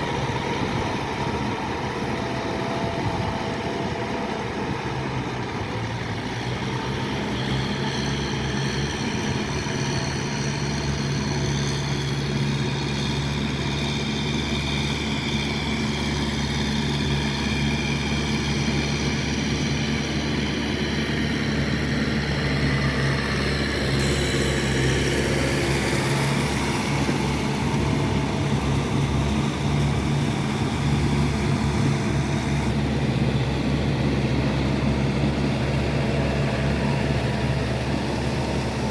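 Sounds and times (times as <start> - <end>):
tractor diesel engine running: 0.0 - 38.9
high hiss: 24.0 - 28.9.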